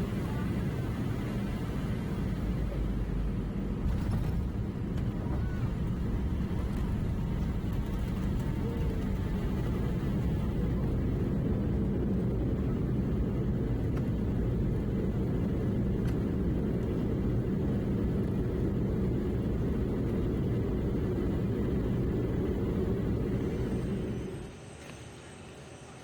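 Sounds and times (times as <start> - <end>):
airliner cabin engine rumble: 0.0 - 25.3.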